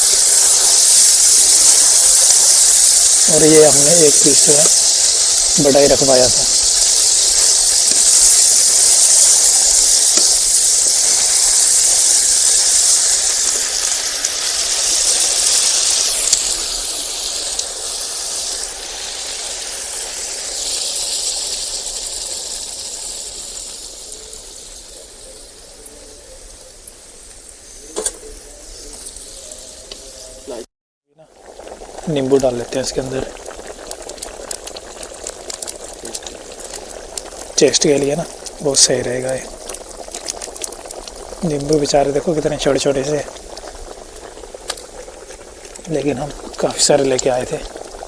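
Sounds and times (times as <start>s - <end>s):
chicken sizzling: 0.0s - 48.0s.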